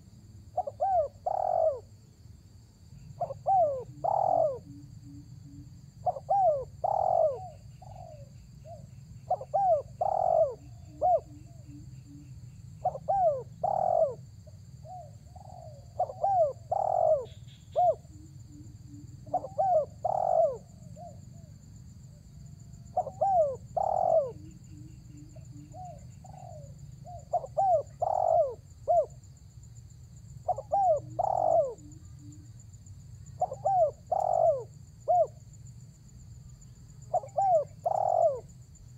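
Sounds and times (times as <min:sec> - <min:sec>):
dove cooing: 0:00.6 - 0:01.9, 0:03.2 - 0:12.2, 0:12.8 - 0:14.2, 0:14.8 - 0:21.5, 0:22.8 - 0:29.2, 0:30.4 - 0:32.4, 0:33.4 - 0:35.4, 0:37.1 - 0:38.5.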